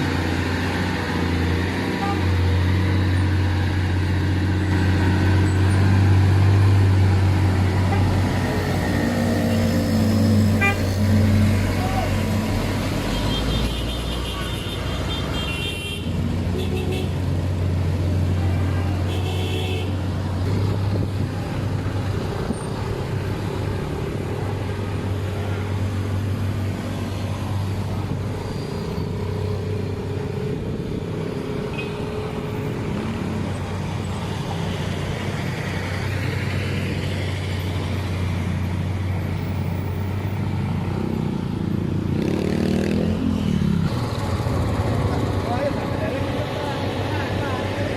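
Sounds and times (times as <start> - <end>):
vehicle engines droning: 0.0 - 47.9.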